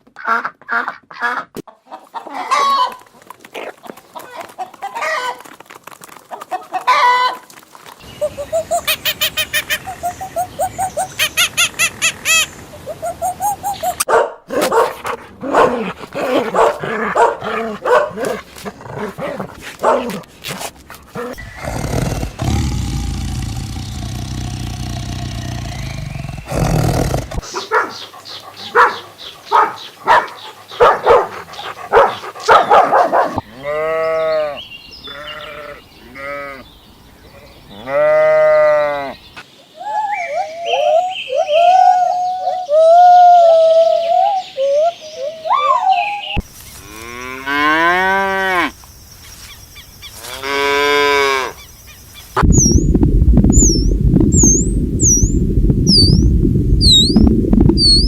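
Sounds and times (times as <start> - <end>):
chickens clucking: 0.2 - 5.4, 6.3 - 7.4
animal calls: 8.0 - 14.1, 15.5 - 36.6, 53.5 - 58.0
dog barking: 14.0 - 20.2, 27.4 - 33.4.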